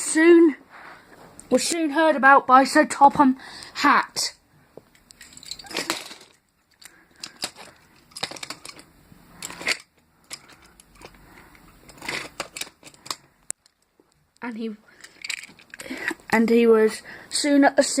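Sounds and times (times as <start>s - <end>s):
toys clicking and scraping: 5.0s - 14.2s, 15.0s - 16.2s.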